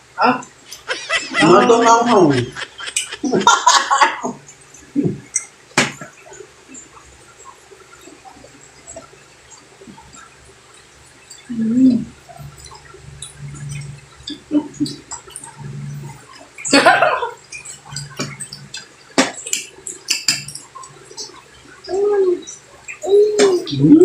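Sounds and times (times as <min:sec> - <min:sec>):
chewing with wet mouth clicks: 0:17.4 - 0:21.4.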